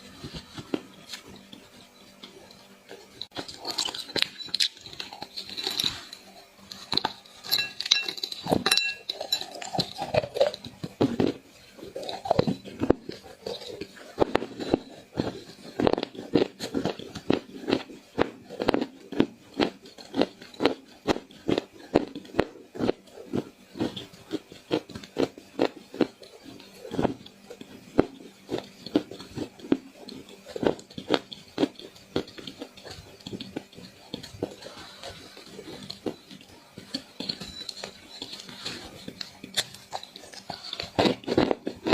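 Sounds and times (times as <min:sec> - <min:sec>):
crunchy clay being chewed: 0:00.0 - 0:41.9.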